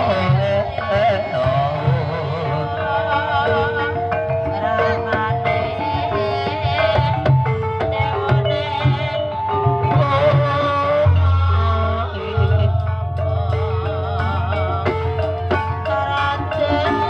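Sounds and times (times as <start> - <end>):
hand drums beat: 0.0 - 17.0
wavering melody: 0.0 - 17.0.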